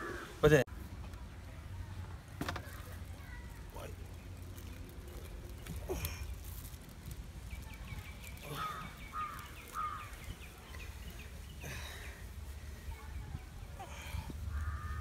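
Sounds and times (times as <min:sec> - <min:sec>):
birds ticking notes: 0:03.6 - 0:15.0
bird falling calls: 0:08.4 - 0:10.9.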